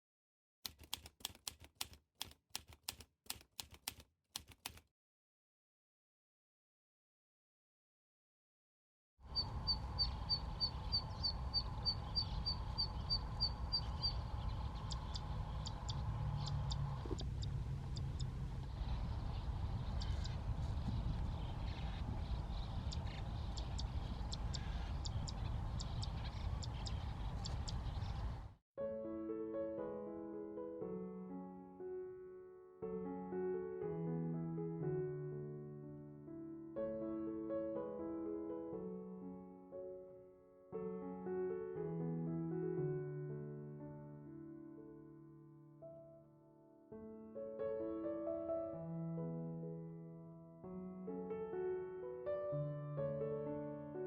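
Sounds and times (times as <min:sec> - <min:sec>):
sharp typing-like clacks: 0:00.7 - 0:04.9
steady low rumble: 0:09.3 - 0:28.5
bird clicking call: 0:22.9 - 0:27.8
piano music: 0:28.8 - 0:54.0.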